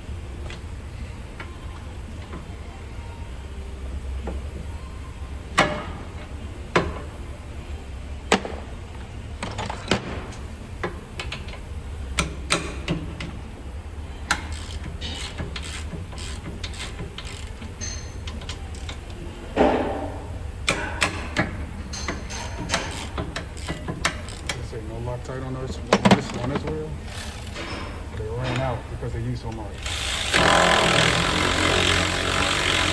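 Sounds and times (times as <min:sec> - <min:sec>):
steady low hum: 0:00.0 - 0:32.9
metal tools clinking: 0:14.5 - 0:18.9, 0:21.9 - 0:24.7
heavy metal clunk: 0:19.5 - 0:24.2.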